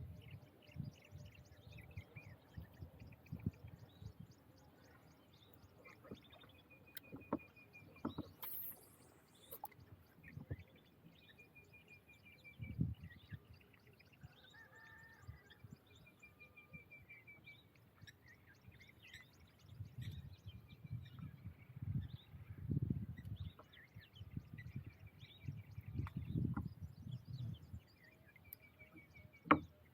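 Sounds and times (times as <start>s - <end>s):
short bird chirps: 5.8s - 13.4s
low knocks and taps: 7.0s - 8.4s, 26.0s - 26.8s, 29.4s - 29.7s.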